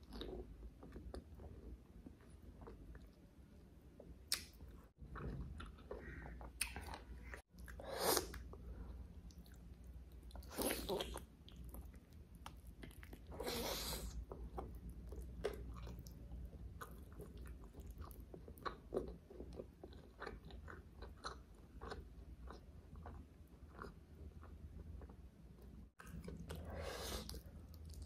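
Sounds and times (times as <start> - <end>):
person chewing food: 4.0 - 28.0.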